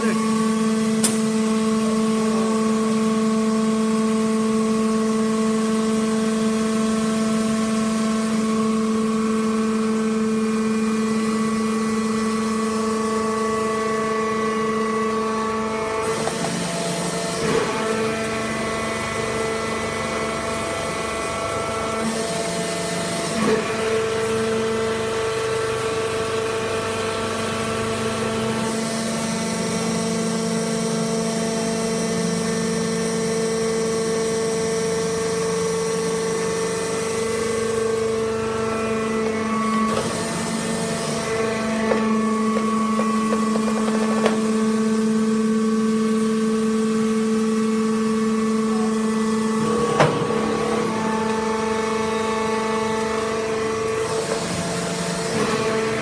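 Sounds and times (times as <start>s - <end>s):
baler machine hum: 32.5s - 56.0s.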